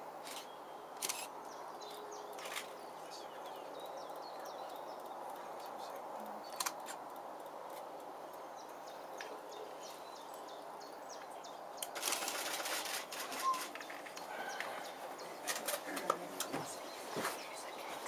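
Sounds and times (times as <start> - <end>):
faint high bird calls: 8.3 - 18.0
rushing rustling noise: 11.9 - 14.2.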